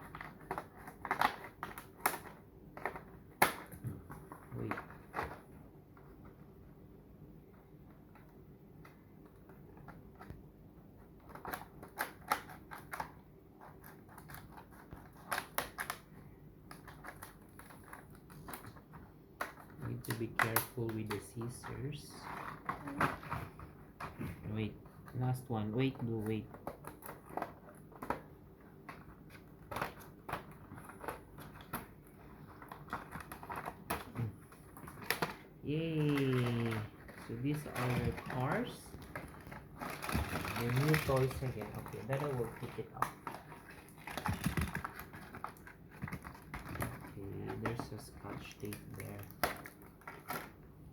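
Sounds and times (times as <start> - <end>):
package rustling: 28.8 - 50.7
scissors snipping packaging: 35.0 - 50.6.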